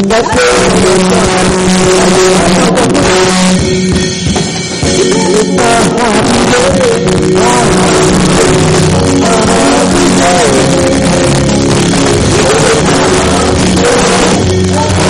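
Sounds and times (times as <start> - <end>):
people singing praise music: 0.0 - 3.5, 4.8 - 15.0
drum kit: 0.0 - 15.0
instruments playing: 0.0 - 15.0.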